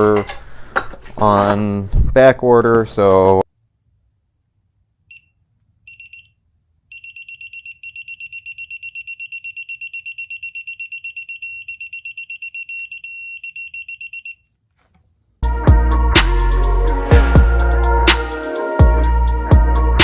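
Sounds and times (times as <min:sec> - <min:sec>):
music: 0:15.4 - 0:20.0.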